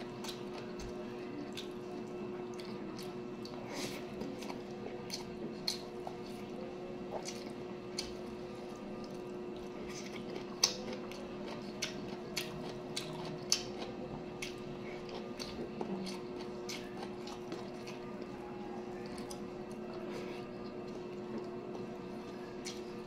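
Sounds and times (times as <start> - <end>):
steady low hum: 0.0 - 23.0
wet chewing and smacking: 0.1 - 6.5, 7.1 - 18.4.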